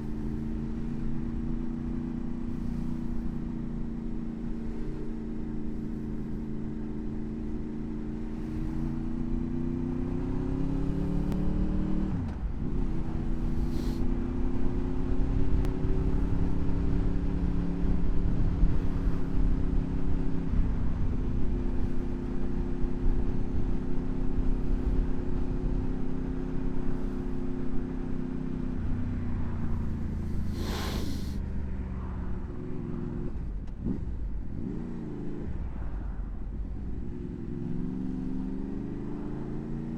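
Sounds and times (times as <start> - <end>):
motorcycle engine revving: 0.0 - 20.8, 32.2 - 35.7.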